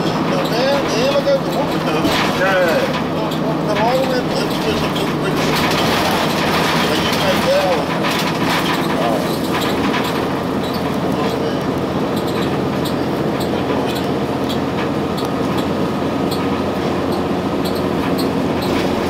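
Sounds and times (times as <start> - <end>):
bus diesel engine drone: 0.0 - 19.0
road noise: 0.0 - 19.0
cabin fittings rattling: 0.4 - 19.0.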